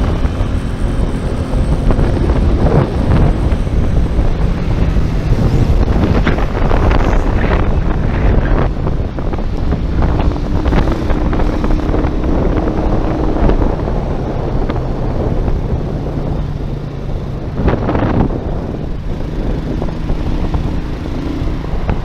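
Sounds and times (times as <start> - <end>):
vehicle engine running: 0.0 - 22.0
wind buffeting microphone: 0.0 - 22.0.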